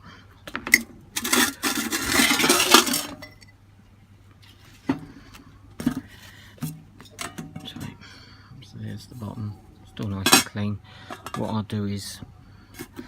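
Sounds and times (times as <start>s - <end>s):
metal parts clattering and scraping: 0.5s - 3.5s, 5.8s - 8.0s, 10.1s - 11.6s
small metal parts clinking: 0.7s - 3.6s.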